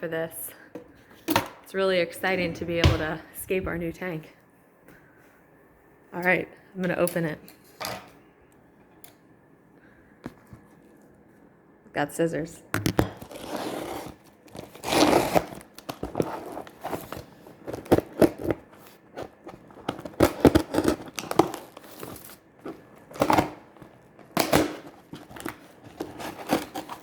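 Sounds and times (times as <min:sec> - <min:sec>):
packing tape tearing: 0:12.9 - 0:27.0
packaging crinkling: 0:13.0 - 0:27.0.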